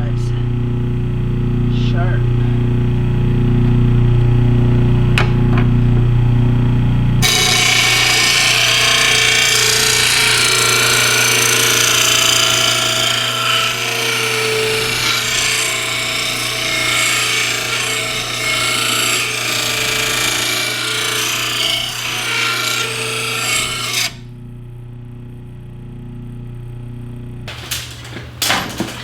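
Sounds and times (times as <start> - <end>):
low motor hum: 0.0 - 20.2, 22.6 - 29.0
grinder grinding metal blade: 7.2 - 24.2, 27.5 - 29.0.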